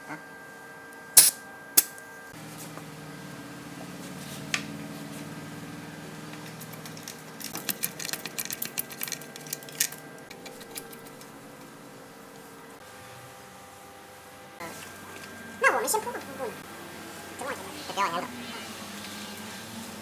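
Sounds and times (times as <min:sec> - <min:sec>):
small metal parts clinking: 0:06.4 - 0:11.1.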